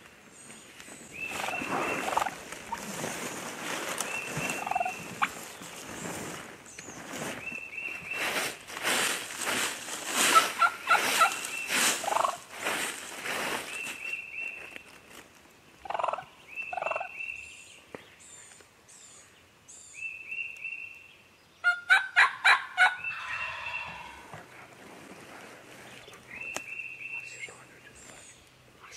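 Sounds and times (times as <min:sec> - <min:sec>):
turkeys gobbling: 0:01.2 - 0:02.9, 0:04.0 - 0:05.5, 0:10.2 - 0:12.5, 0:15.8 - 0:17.1, 0:21.6 - 0:24.8.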